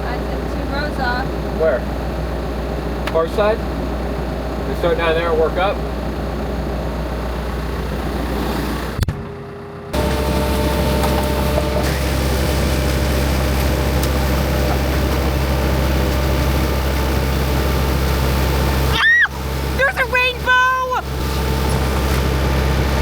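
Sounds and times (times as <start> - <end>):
farm machine engine drone: 0.0 - 23.0
whining tones: 9.9 - 23.0.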